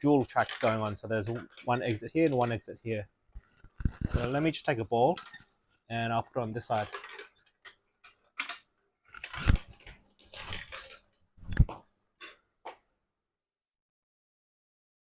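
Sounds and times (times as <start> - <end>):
marbles clattering on plastic track: 0.3 - 2.6, 6.7 - 7.4.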